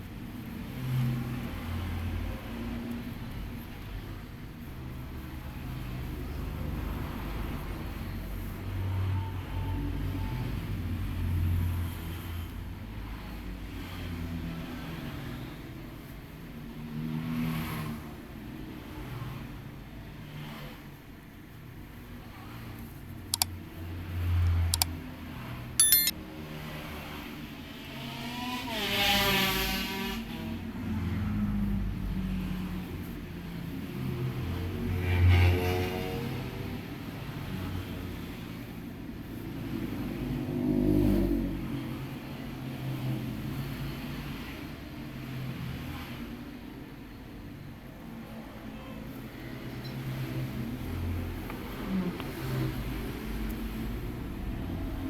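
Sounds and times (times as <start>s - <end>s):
sharp clicks: 25.8s - 26.1s
road traffic rumble: 30.4s - 55.0s
vehicles passing: 47.4s - 55.0s.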